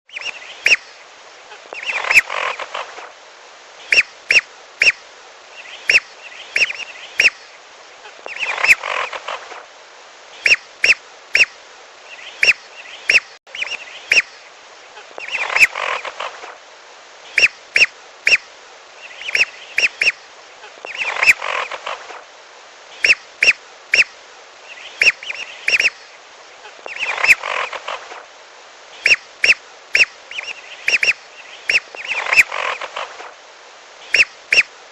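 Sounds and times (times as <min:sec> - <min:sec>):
steady hiss: 0:00.1 - 0:34.9
whistling ducks calling: 0:01.7 - 0:02.8, 0:05.6 - 0:07.4, 0:08.2 - 0:09.4, 0:10.4 - 0:11.5, 0:12.1 - 0:14.4, 0:15.2 - 0:16.3, 0:17.4 - 0:18.4, 0:19.0 - 0:20.2, 0:20.8 - 0:22.0, 0:23.0 - 0:24.1, 0:24.7 - 0:26.0, 0:26.8 - 0:28.0, 0:29.0 - 0:33.1, 0:34.1 - 0:34.7.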